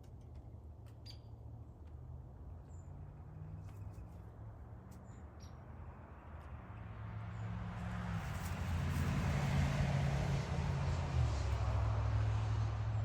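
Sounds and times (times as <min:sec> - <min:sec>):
vehicle passing by: 0:06.6 - 0:13.0.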